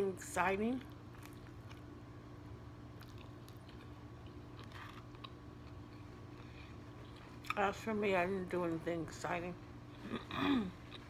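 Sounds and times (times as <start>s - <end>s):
steady low hum: 0.0s - 11.0s
close-up chewing: 0.9s - 2.0s, 2.9s - 7.7s.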